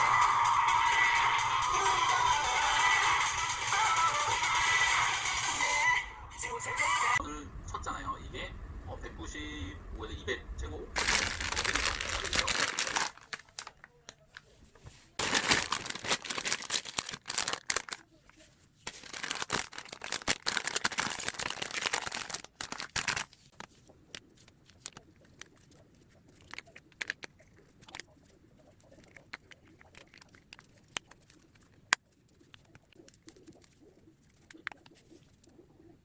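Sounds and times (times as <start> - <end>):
packaging crinkling: 11.0 - 35.4.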